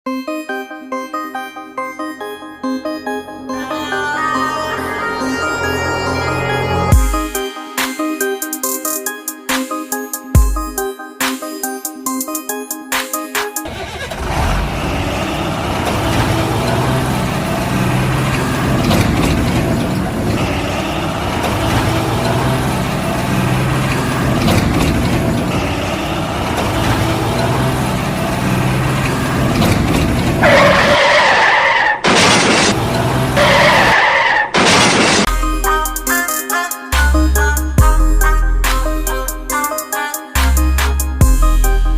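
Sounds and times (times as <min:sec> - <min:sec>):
vehicle engine running: 0:13.6 - 0:31.1
loud harsh blasts: 0:30.6 - 0:35.3.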